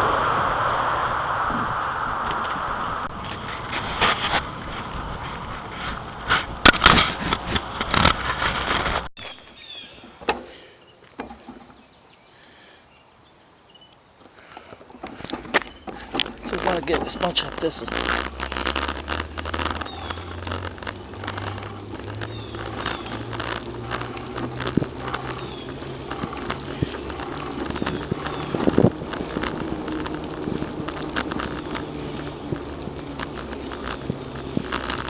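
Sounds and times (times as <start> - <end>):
low hum: 0.0 - 6.6
bicycle rattling over trail: 3.1 - 35.0.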